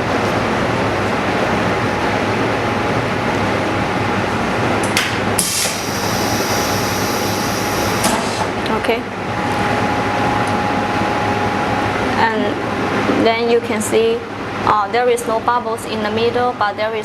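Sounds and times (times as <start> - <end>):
pump humming: 0.0 - 13.0
air hissing: 5.4 - 8.5.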